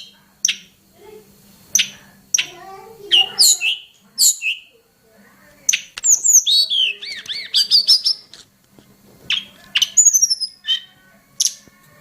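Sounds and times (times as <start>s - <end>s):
songbird singing: 0.0s - 0.8s, 1.7s - 4.8s, 5.6s - 8.4s, 9.2s - 11.8s.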